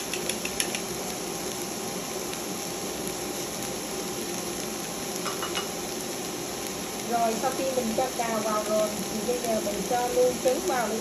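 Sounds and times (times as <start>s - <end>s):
spatula clicks: 0.0s - 0.9s
food sizzling in oil: 0.0s - 11.0s.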